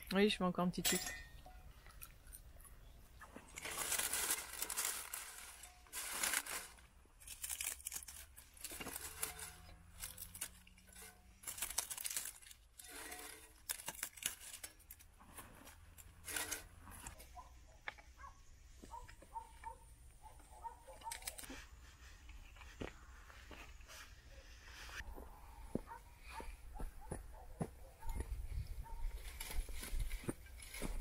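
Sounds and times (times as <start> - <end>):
crumpling and tearing: 3.2 - 17.2, 20.9 - 21.6.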